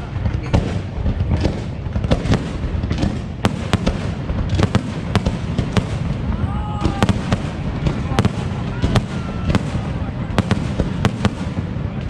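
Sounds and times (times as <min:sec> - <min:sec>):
fireworks bangs: 0:00.0 - 0:12.0
fireworks rumble and crackle: 0:00.0 - 0:12.0.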